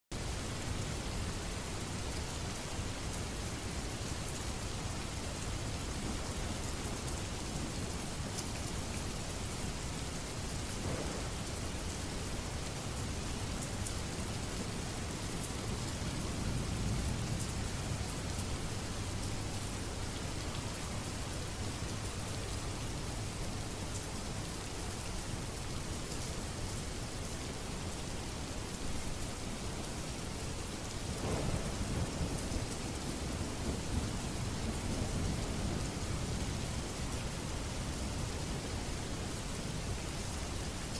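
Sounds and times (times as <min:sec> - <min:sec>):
steady rain: 0:00.1 - 0:40.9
distant thunder rolling: 0:10.8 - 0:11.5, 0:31.2 - 0:35.8.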